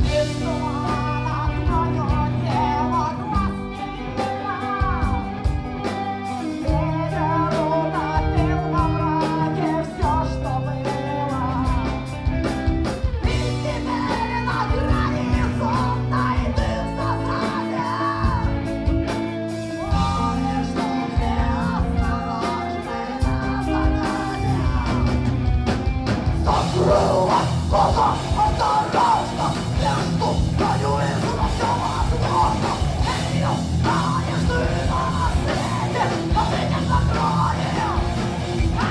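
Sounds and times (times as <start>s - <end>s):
person singing: 0.0s - 12.4s, 13.2s - 18.8s, 19.7s - 25.3s, 26.4s - 38.9s
heavy metal band playing: 0.0s - 38.9s.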